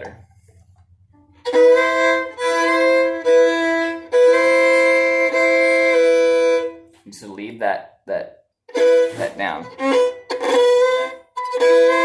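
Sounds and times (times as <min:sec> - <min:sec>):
fiddle bowed double stops: 0:01.2 - 0:07.0, 0:08.7 - 0:12.0.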